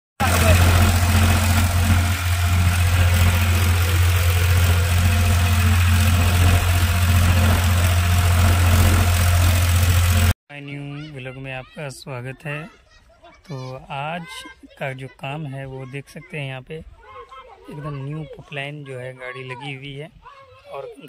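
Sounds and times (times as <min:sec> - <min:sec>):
heavy diesel engine idling: 0:00.2 - 0:10.3.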